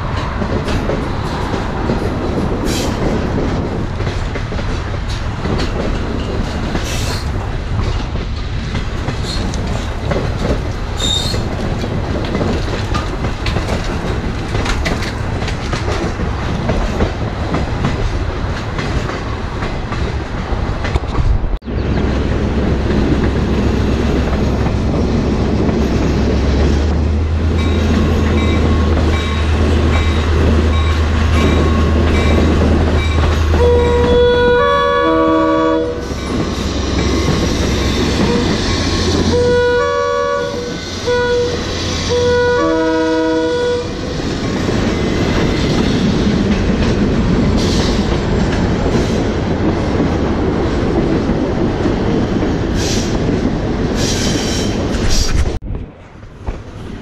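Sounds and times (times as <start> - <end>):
railroad car rumbling and rattling: 0.0 - 57.0
high wheel squeal: 11.0 - 11.5.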